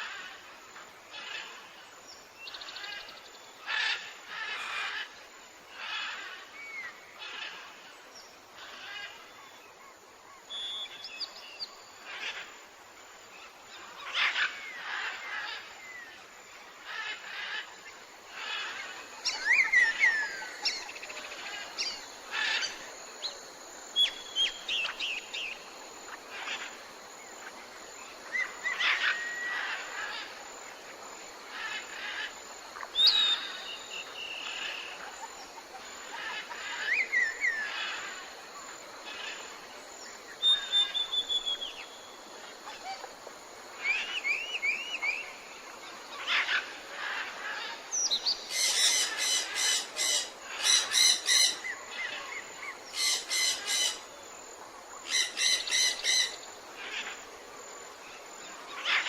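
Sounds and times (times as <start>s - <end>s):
background hiss: 0.0s - 59.0s
birds chirping and whistling: 40.4s - 41.8s.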